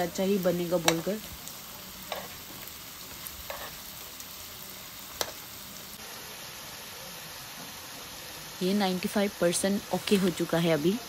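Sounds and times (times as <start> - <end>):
patties sizzling in hot oil: 0.0 - 11.0
metal tongs clicking on pan: 0.8 - 1.1.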